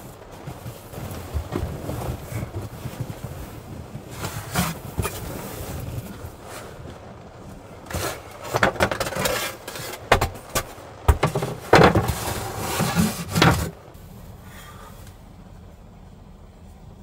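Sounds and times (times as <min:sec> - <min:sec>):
objects rubbing and scraping: 0:07.8 - 0:14.0.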